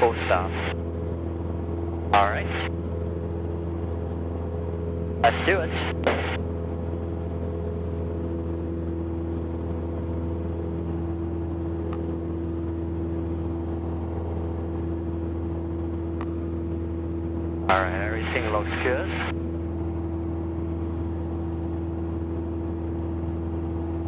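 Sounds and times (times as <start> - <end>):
propeller plane engine droning: 0.0 - 24.0.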